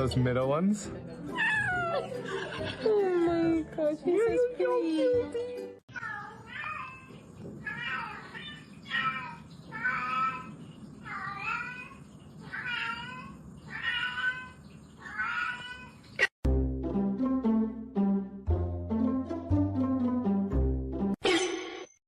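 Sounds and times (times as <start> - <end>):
cat meowing: 1.3 - 2.2, 5.9 - 10.5, 11.1 - 16.0
plucked string music: 16.5 - 21.2.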